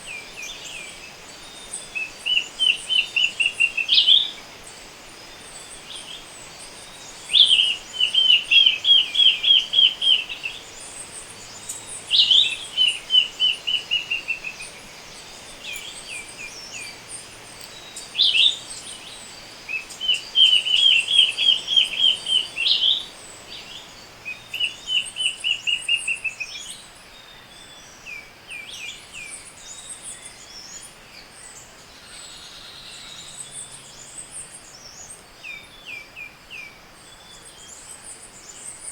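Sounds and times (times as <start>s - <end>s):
birds chirping high and thin: 0.0s - 26.8s.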